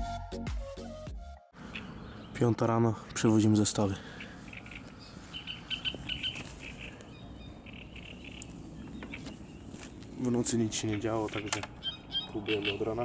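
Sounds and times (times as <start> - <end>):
small birds chirping: 1.6 - 13.0
light clicks and knocks: 11.3 - 11.8.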